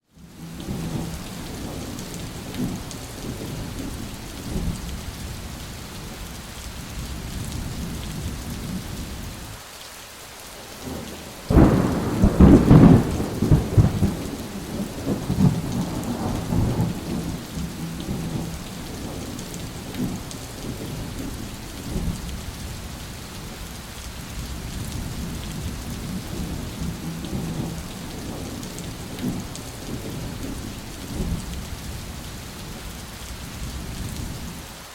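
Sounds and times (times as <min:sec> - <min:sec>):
steady rain: 0:00.0 - 0:34.9
low rolling thunder: 0:00.3 - 0:05.3, 0:10.8 - 0:23.5, 0:24.3 - 0:34.5
loud thunderclap: 0:11.5 - 0:21.0.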